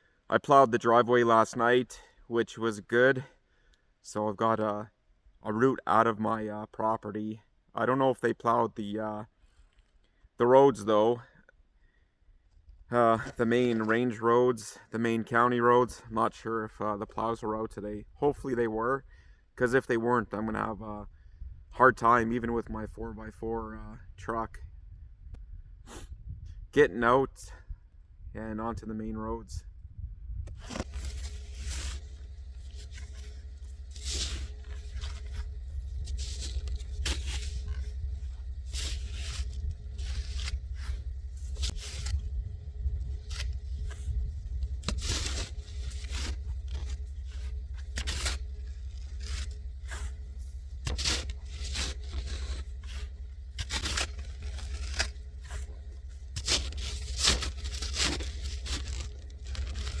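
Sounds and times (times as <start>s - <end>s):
low rumble: 22.4s - 26.8s, 27.5s - 60.0s
snow shovel scraping snow: 30.5s - 42.4s, 43.0s - 60.0s.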